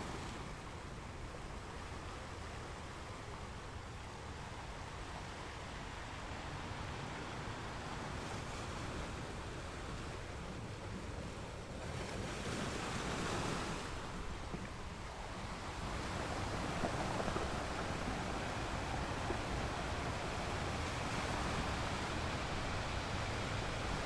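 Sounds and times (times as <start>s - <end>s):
ocean surf breaking: 2.2s - 24.0s
wind buffeting microphone: 4.9s - 24.0s.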